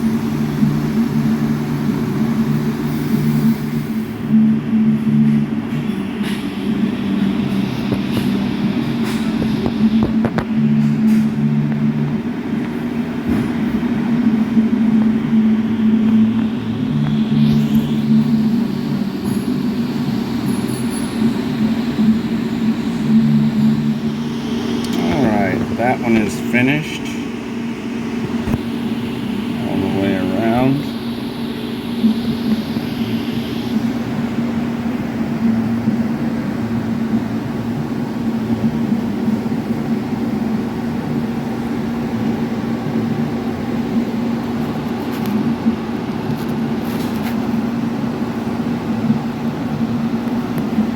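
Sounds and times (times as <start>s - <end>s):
welding arc buzzing: 0.0s - 36.2s
steady machine hum: 0.0s - 50.9s.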